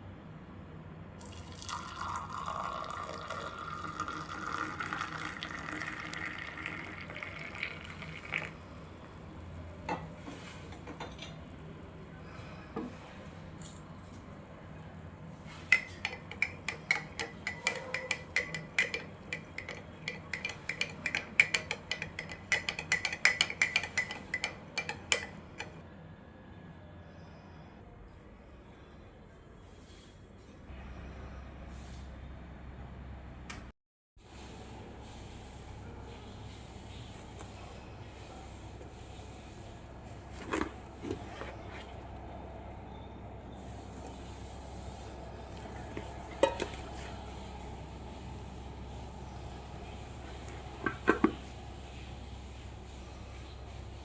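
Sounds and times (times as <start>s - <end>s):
water pouring into container: 1.2s - 8.6s.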